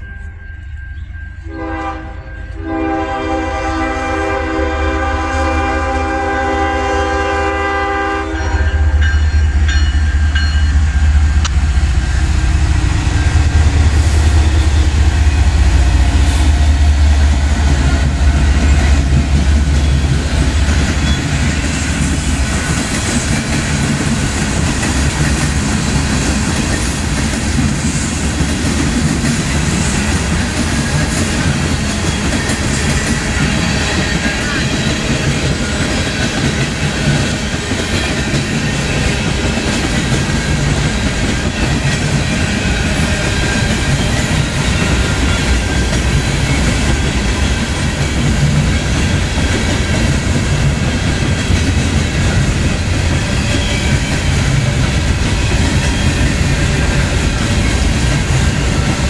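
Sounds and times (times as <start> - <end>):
diesel locomotive engine rumbling: 0.0 - 59.0
locomotive air horn: 1.4 - 8.8
freight cars rolling on rails: 9.0 - 59.0.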